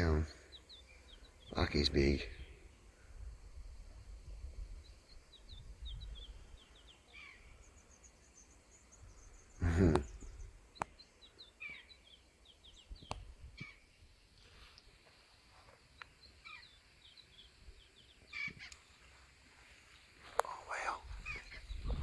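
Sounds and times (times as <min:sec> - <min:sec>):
small birds chirping: 0:00.0 - 0:22.0
wind rumble on microphone: 0:02.3 - 0:06.6, 0:21.0 - 0:22.0.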